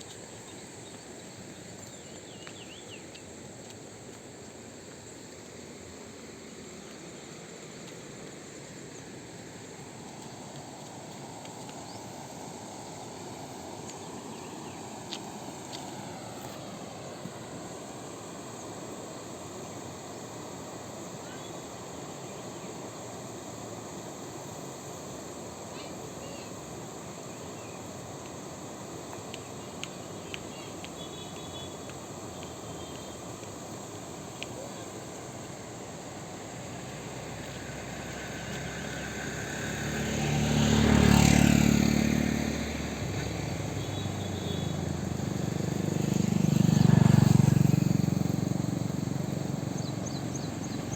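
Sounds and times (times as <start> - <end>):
insects chirping: 0.0 - 50.9
motor vehicle passing: 36.0 - 50.9.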